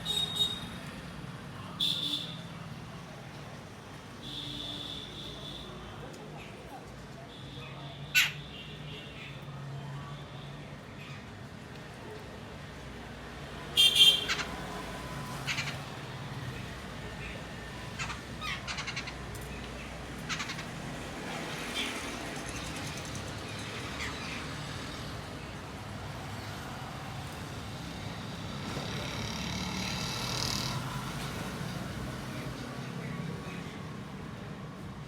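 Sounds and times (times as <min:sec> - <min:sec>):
small birds chirping: 0:13.8 - 0:25.6.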